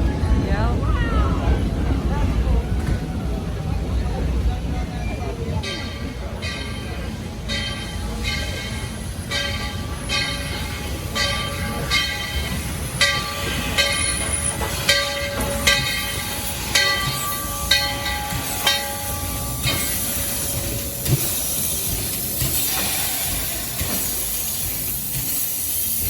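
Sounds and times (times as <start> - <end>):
locomotive bell ringing: 5.0 - 26.0
steam hissing: 5.6 - 26.0.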